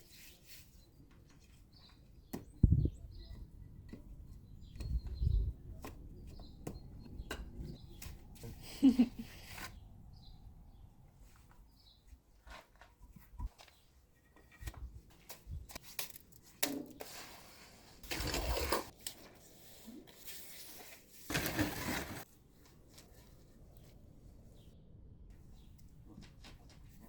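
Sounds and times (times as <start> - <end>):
rough scraping: 17.0 - 19.0, 20.2 - 22.3.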